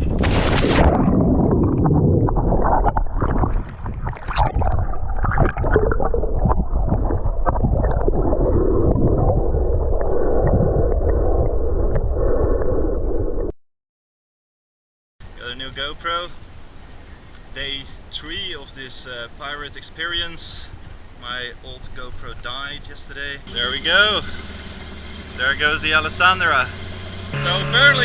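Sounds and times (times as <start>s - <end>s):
underwater sloshing and gurgling: 0.0s - 13.5s.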